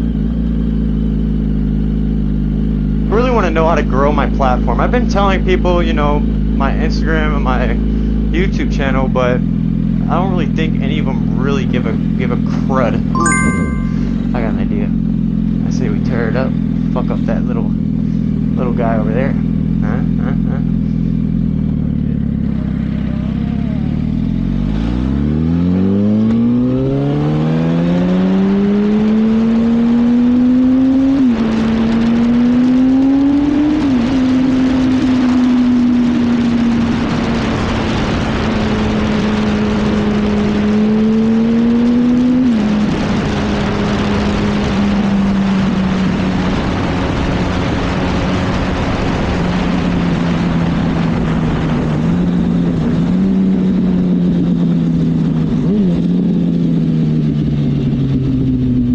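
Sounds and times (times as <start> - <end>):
motorcycle engine accelerating: 14.4 - 58.9.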